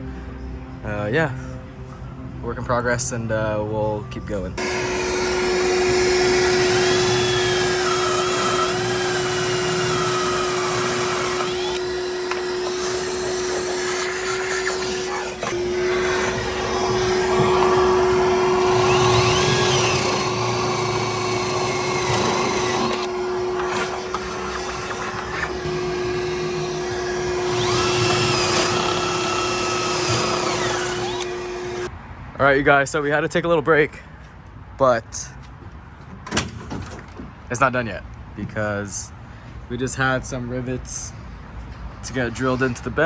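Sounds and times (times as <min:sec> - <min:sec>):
steady mechanical hum: 0:00.0 - 0:32.0
power tool whining: 0:04.6 - 0:31.9.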